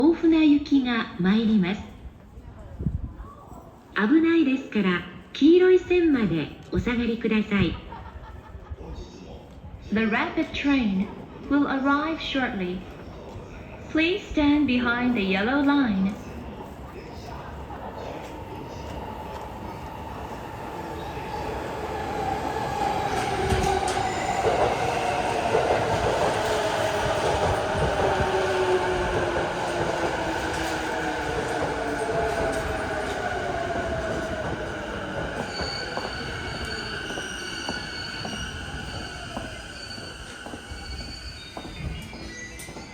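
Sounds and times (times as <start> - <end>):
high brake squeal: 35.4 - 42.9.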